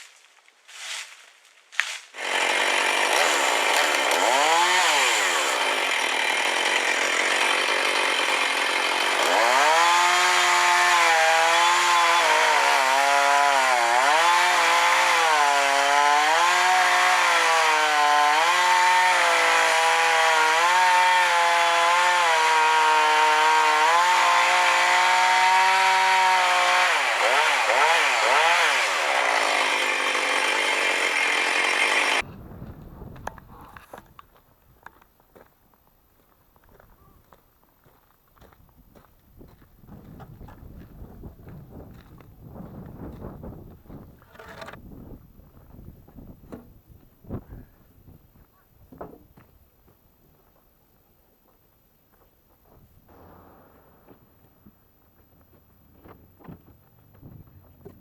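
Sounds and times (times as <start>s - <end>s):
chainsaw cutting wood: 1.8s - 32.3s, 44.0s - 44.8s.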